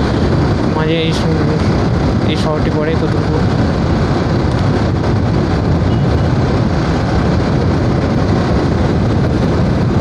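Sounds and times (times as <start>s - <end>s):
wind rumble: 0.0s - 10.0s
motorcycle engine: 2.9s - 10.0s.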